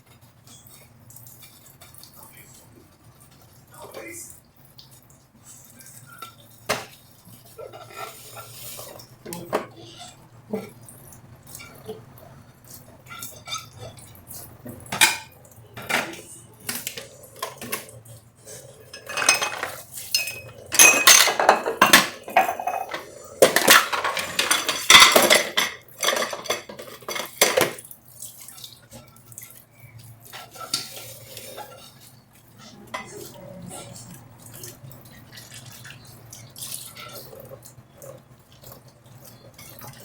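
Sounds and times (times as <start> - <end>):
dishes and cutlery clinking: 11.5 - 29.5, 30.2 - 40.0.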